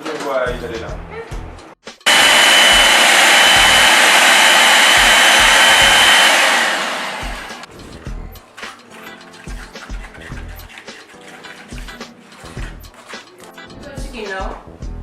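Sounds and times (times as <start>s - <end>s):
electric blender running: 2.1s - 7.7s.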